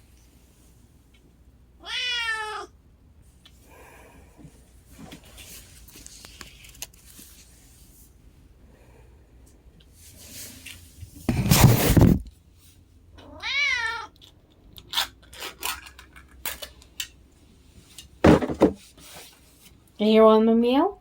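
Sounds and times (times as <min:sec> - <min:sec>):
cat meowing: 0:01.8 - 0:02.7, 0:13.2 - 0:14.2
rustling or clattering: 0:04.9 - 0:07.9, 0:10.2 - 0:12.3, 0:17.8 - 0:19.8.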